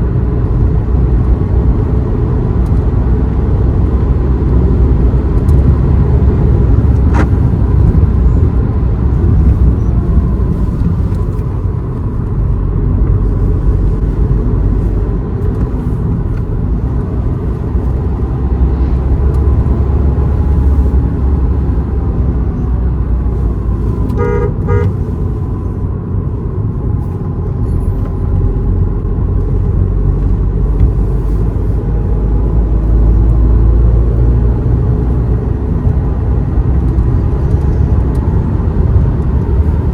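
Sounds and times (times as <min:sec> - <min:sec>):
car engine and road noise: 0:00.0 - 0:39.9
vehicle horn: 0:24.1 - 0:25.1.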